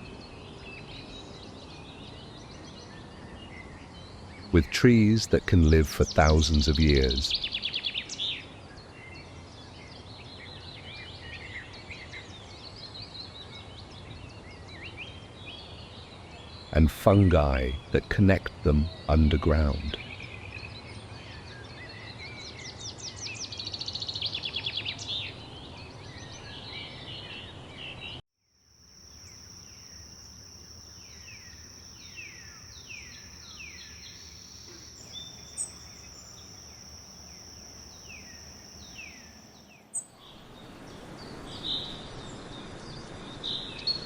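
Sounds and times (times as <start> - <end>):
bird singing with fast trill: 0.1 - 28.2, 29.1 - 44.0
high-pitched insect drone: 28.7 - 39.7.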